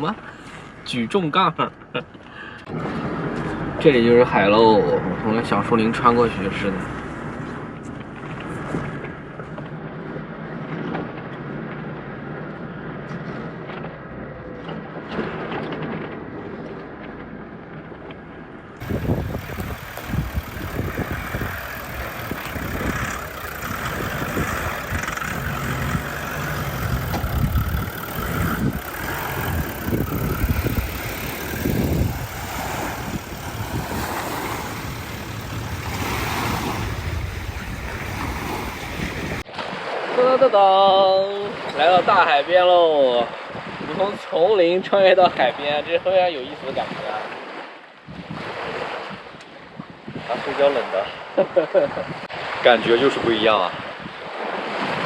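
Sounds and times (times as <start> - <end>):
surf: 0.0 - 55.0
wind buffeting microphone: 18.8 - 39.5, 43.0 - 44.2, 48.0 - 50.4, 51.3 - 55.0.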